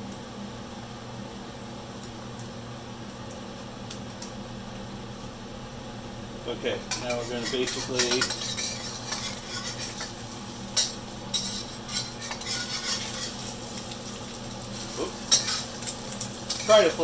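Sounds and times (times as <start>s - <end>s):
eggs sizzling in oil: 1.2s - 17.0s
utensil scraping and tapping pan: 6.9s - 10.2s, 10.8s - 13.5s.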